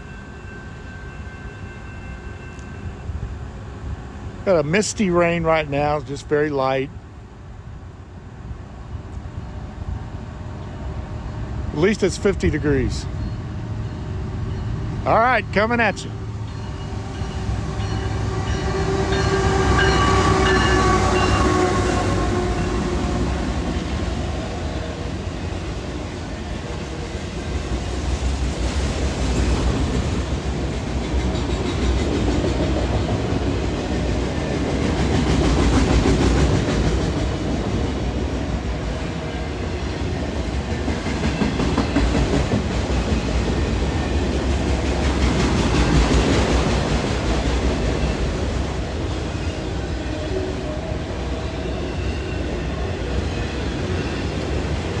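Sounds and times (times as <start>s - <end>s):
freight train rolling past: 0.0s - 55.0s
wheels clacking over rail joints: 17.2s - 50.0s.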